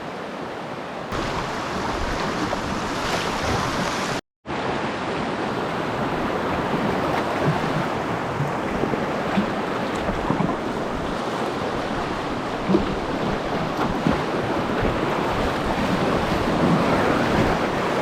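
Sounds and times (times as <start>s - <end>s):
river water rushing over rocks: 0.3s - 6.7s.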